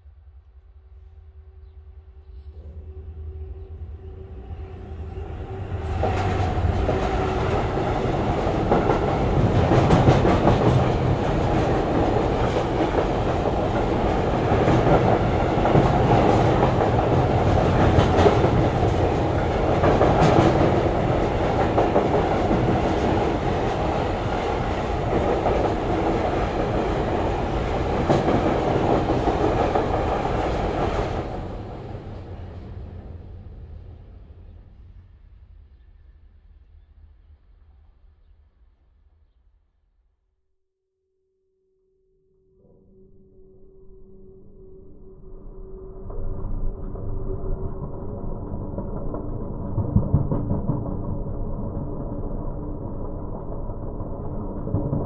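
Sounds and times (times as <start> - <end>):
train rumbling over steel bridge: 2.2 - 36.1, 45.7 - 55.0.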